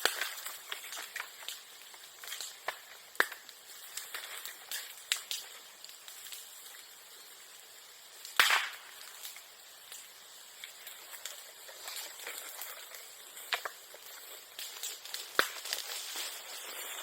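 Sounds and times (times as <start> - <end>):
bonfire crackling: 0.0 - 17.0
bamboo bursting pop: 8.3 - 9.4, 14.6 - 15.9.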